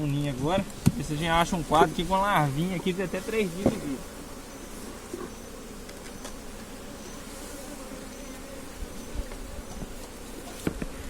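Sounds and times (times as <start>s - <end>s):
faint low thumps: 0.4s - 6.0s
bees buzzing: 0.6s - 11.0s.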